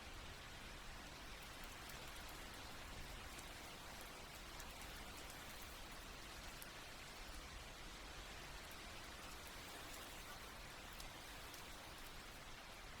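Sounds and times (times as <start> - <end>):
faint rain on a tent: 0.0 - 13.0.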